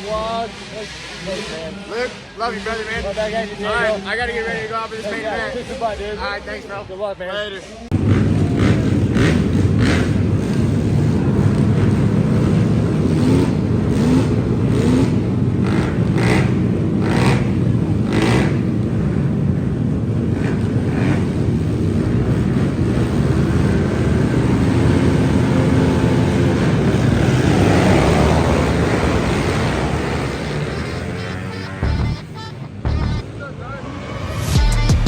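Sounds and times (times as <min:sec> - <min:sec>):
motor vehicle engines rumbling: 0:00.0 - 0:35.0
short sharp engine bursts: 0:23.1 - 0:35.0.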